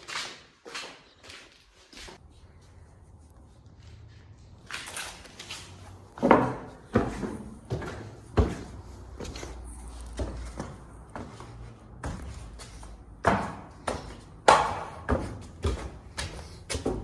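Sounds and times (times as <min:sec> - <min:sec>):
irregular knocks and thuds: 0:06.2 - 0:17.0.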